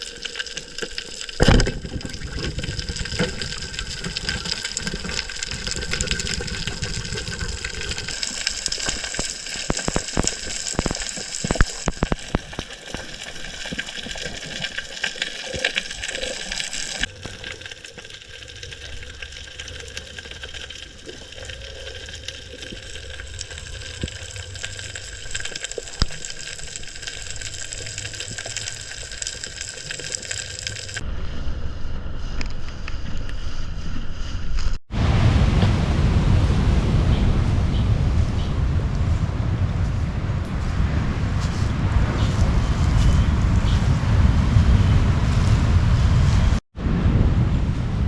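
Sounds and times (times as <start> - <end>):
rushing splashing water: 0.0 - 31.0.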